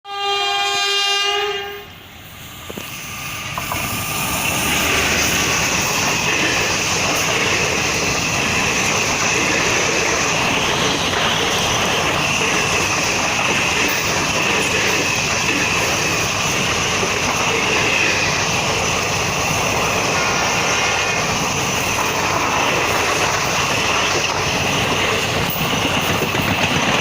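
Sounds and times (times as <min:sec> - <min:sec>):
locomotive horn blast: 0:00.1 - 0:01.9
train wheels rushing on rails: 0:00.9 - 0:27.0.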